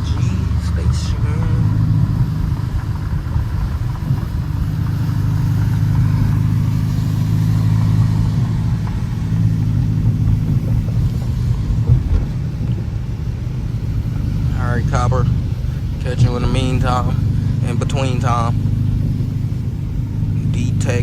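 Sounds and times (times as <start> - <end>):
car engine droning: 0.0 - 21.0.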